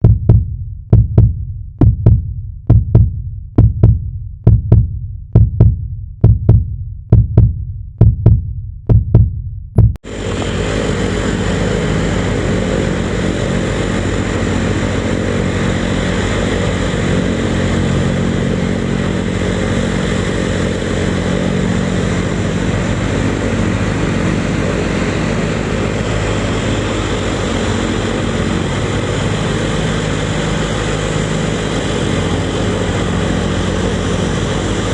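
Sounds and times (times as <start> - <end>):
low thumps: 0.0 - 10.1
jet engines running: 10.0 - 34.9.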